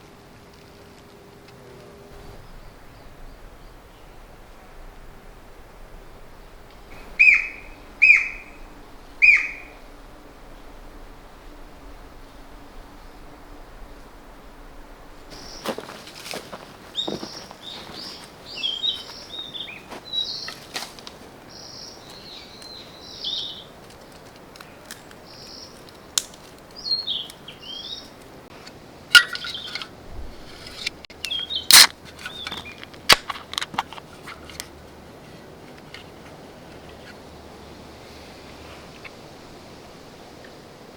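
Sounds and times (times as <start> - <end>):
small birds chirping: 6.8 - 9.8, 15.3 - 23.8, 24.6 - 28.4, 29.4 - 33.2
sharp cracks: 24.1 - 27.4, 30.5 - 34.6.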